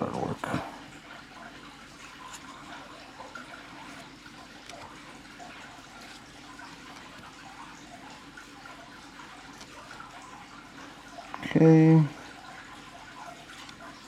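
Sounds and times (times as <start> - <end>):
trading cards sliding and ticking: 2.0 - 10.4, 13.5 - 13.9.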